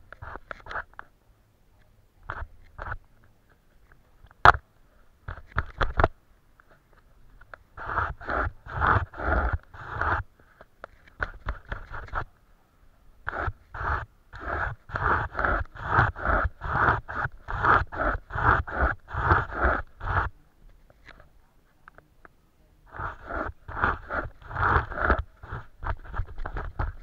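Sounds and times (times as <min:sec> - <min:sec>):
paintbrush scraping on paper: 0:00.0 - 0:01.0, 0:07.8 - 0:12.3, 0:13.2 - 0:21.3, 0:22.9 - 0:27.0.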